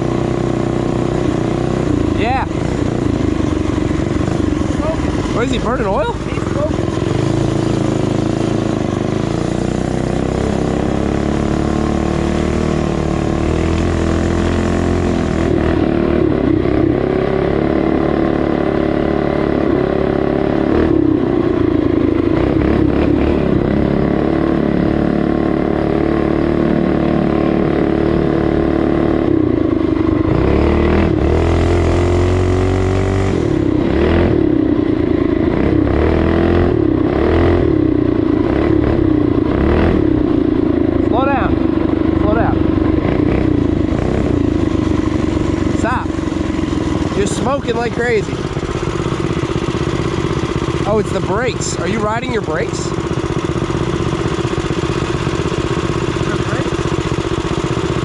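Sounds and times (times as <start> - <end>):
mini bike engines running: 0.0 - 58.0.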